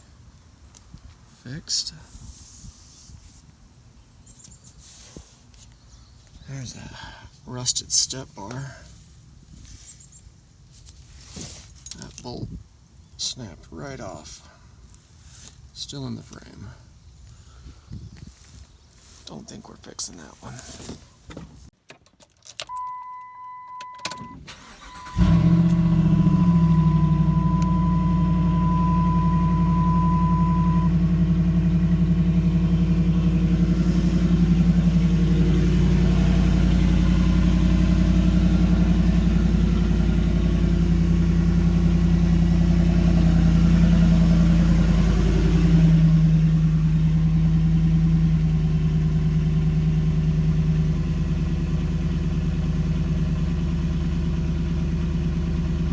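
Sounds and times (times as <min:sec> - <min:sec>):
truck engine cranking and idling: 0:21.1 - 0:55.9
high electronic tone: 0:26.0 - 0:31.0.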